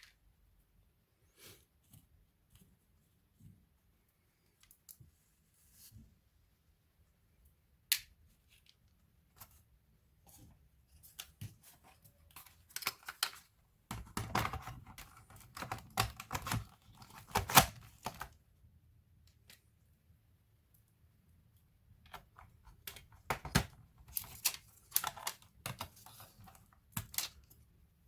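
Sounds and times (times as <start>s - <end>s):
plastic laptop parts clicking: 12.3s - 18.4s, 22.0s - 27.6s.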